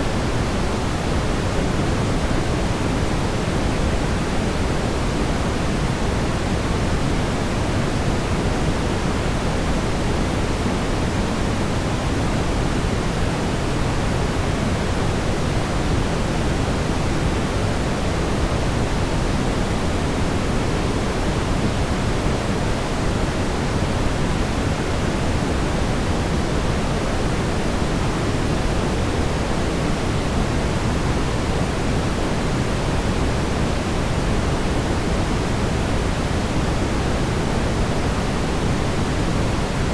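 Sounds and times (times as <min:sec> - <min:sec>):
brown noise rumbling hiss: 0:00.0 - 0:39.9.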